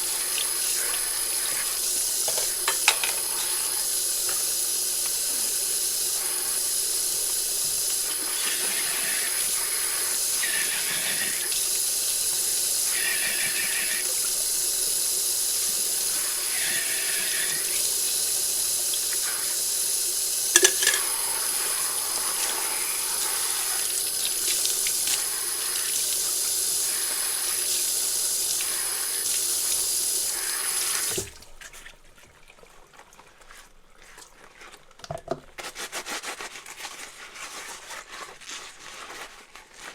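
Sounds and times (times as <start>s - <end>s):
tap water running into sink: 0.0s - 31.7s
dish clinking: 2.3s - 3.3s, 20.6s - 21.2s.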